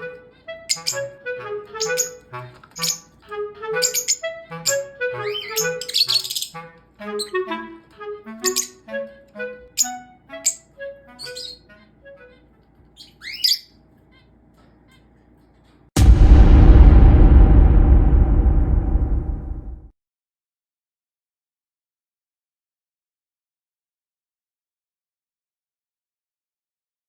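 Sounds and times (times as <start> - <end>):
background music melody: 0.0 - 13.0
lovebird chirping: 0.6 - 1.1, 1.8 - 2.2, 2.8 - 3.1, 3.8 - 6.6, 8.4 - 8.8, 9.8 - 11.7, 13.0 - 13.7.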